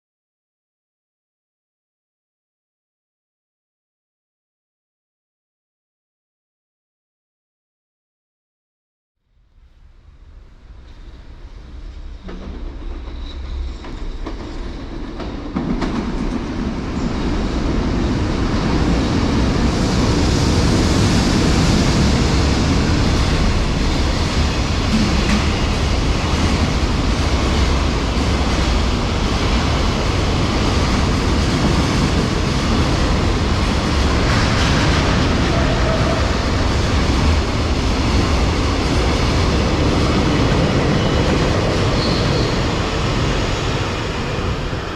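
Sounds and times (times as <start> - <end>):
train wheels clattering: 19.7 - 43.8.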